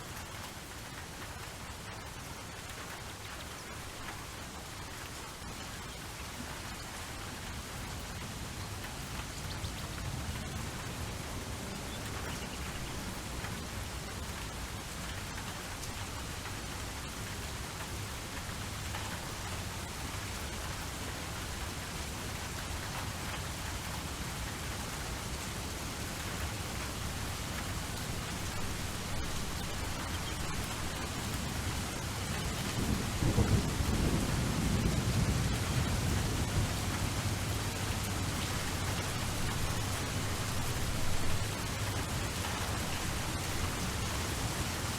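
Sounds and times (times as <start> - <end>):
steady rain falling: 0.0 - 44.9
thunder rumbling: 32.4 - 37.8.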